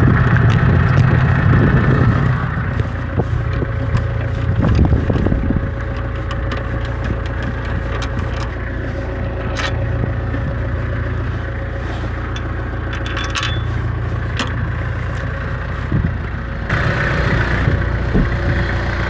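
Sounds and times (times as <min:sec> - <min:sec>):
tractor engine running: 0:00.0 - 0:19.0
metallic clinks and rattles: 0:02.8 - 0:15.5.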